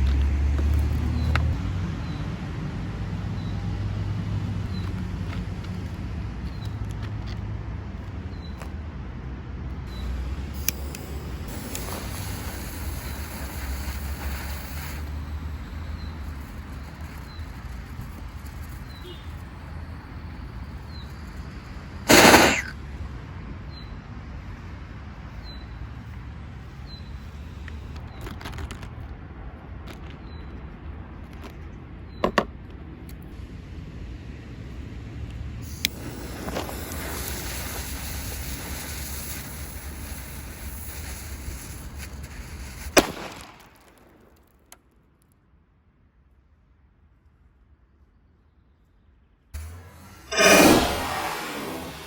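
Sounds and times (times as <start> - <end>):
rushing hiss and low rumble: 9.8 - 23.2, 33.3 - 43.0.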